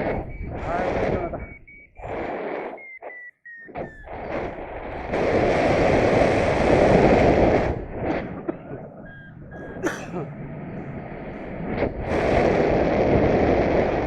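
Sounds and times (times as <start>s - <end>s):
wind buffeting microphone: 0.0s - 2.9s, 3.7s - 14.0s
electronic beep tone: 0.0s - 4.5s, 8.7s - 9.9s.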